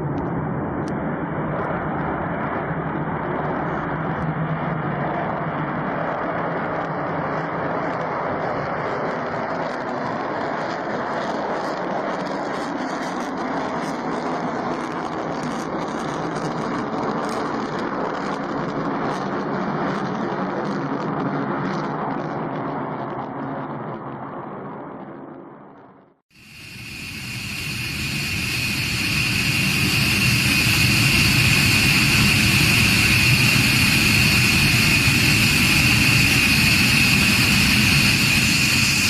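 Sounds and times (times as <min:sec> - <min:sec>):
faint high whine: 0:26.4 - 0:39.0
engine humming: 0:26.5 - 0:39.0.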